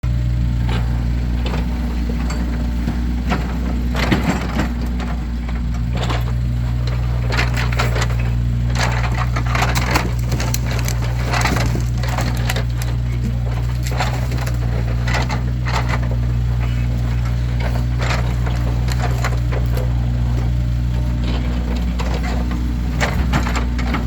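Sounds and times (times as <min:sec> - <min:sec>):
firewood logs knocking together: 0:05.6 - 0:24.0.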